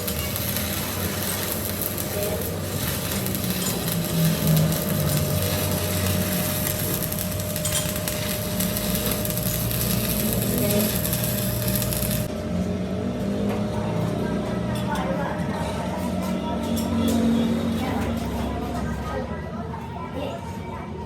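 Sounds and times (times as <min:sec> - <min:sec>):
power tool working metal: 0:00.0 - 0:12.3.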